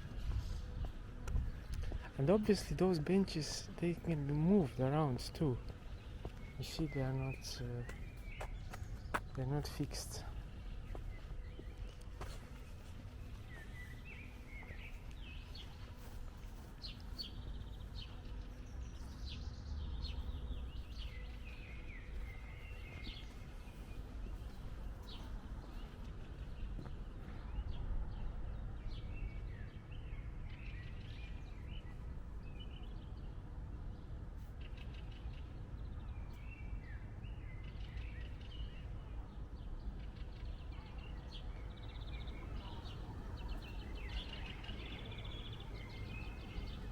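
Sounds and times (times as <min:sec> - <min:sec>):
songbirds chirping: 0:00.0 - 0:46.9.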